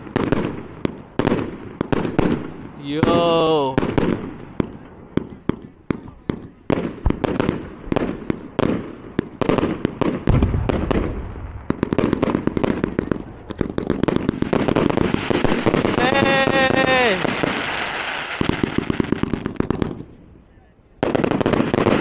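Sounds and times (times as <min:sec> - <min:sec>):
fireworks crackling: 0:00.0 - 0:04.4, 0:09.3 - 0:20.2, 0:21.0 - 0:22.0
fireworks bangs and pops: 0:00.0 - 0:20.2, 0:21.0 - 0:22.0
deep firework boom: 0:10.3 - 0:13.8.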